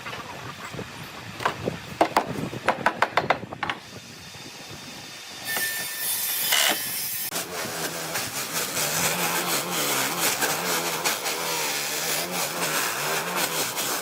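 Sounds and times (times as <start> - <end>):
sharp wooden knocks: 1.4 - 3.8
power tool rushing: 4.8 - 14.0.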